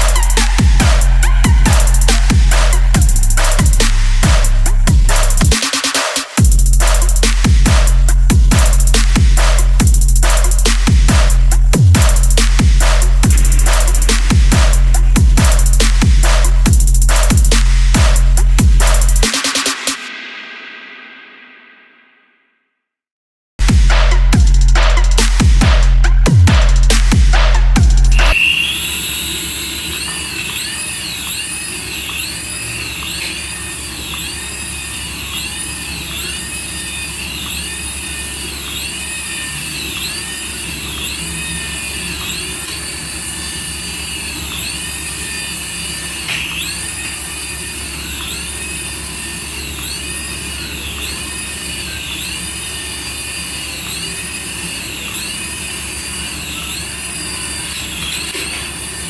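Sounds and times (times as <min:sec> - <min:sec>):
steady electronic hum: 0:00.0 - 0:05.6, 0:28.0 - 0:59.0
electronic toy jet whine: 0:00.0 - 0:09.6, 0:28.0 - 0:59.0.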